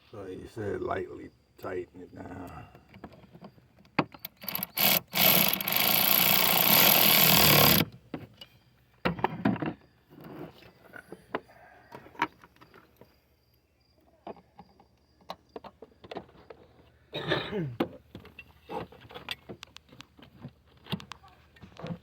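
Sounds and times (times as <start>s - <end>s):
tools clicking and knocking: 3.8s - 8.5s
power ratchet tightening: 4.2s - 7.9s.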